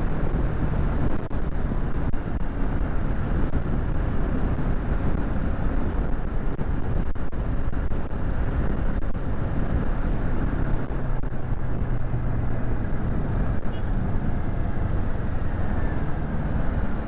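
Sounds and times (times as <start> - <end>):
wind rushing over microphone: 0.0 - 17.0
motorcycle engine running: 14.4 - 17.0.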